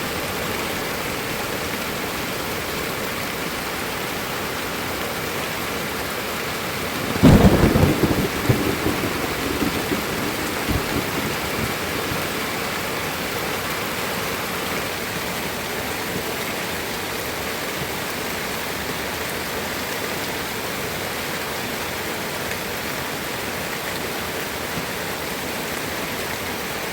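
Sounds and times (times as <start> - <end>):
steady rain: 0.0 - 26.9
thunderclap rumbling: 7.0 - 12.4.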